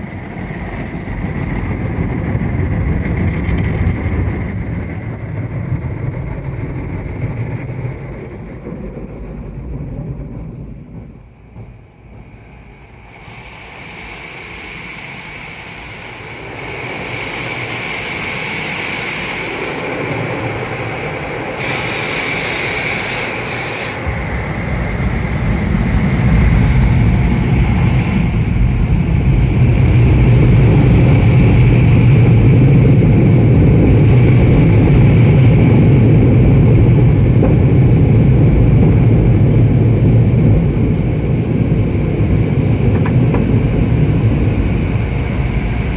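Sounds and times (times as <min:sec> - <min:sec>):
car wash machinery rumble: 0:00.0 - 0:45.9
loud hiss: 0:12.9 - 0:24.6.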